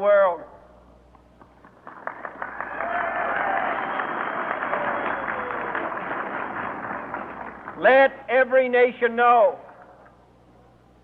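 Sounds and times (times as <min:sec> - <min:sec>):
large crowd applauding: 0:01.4 - 0:07.9.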